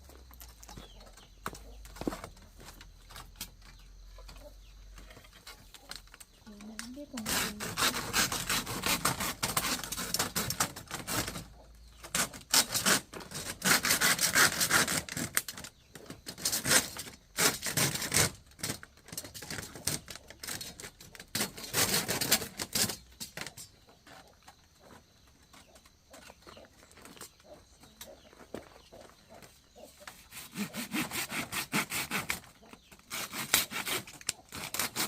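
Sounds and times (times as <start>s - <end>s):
hand saw cutting wood: 6.5s - 23.6s, 30.0s - 35.0s.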